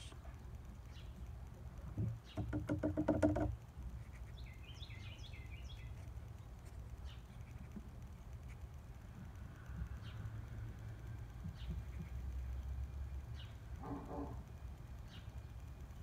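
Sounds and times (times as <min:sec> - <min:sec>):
high bird chirping: 0:04.3 - 0:06.1.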